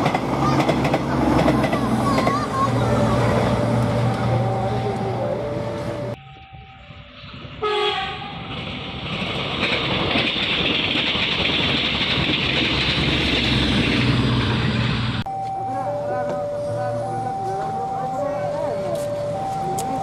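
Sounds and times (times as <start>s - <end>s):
train wheels rumbling on rail: 0.0s - 6.2s, 7.0s - 15.2s
train horn blast: 7.6s - 8.4s.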